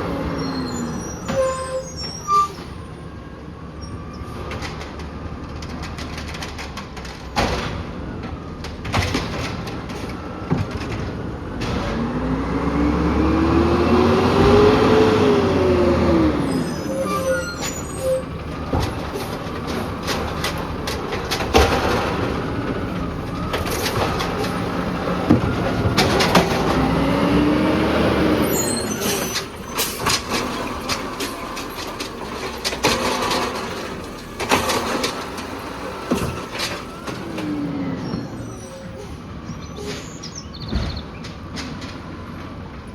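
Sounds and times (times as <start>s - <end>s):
garbage truck engine revving: 7.5s - 42.6s
carts knocking and rattling: 16.3s - 27.1s, 28.0s - 38.4s.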